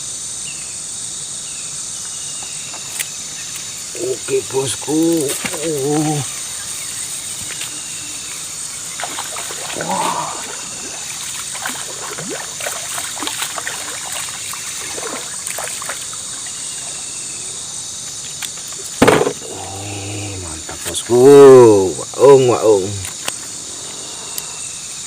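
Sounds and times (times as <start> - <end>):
night insects chirring: 0.0 - 25.0
water dribbling and splashing: 4.3 - 6.6, 7.3 - 17.3.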